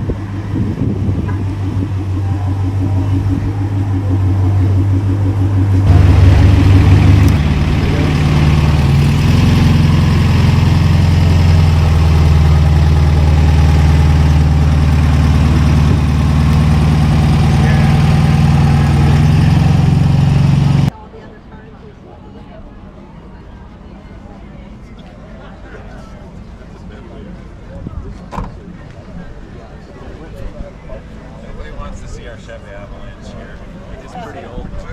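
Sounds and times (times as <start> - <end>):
car engine idling: 0.0 - 20.9
deeper engine sound: 0.0 - 20.9.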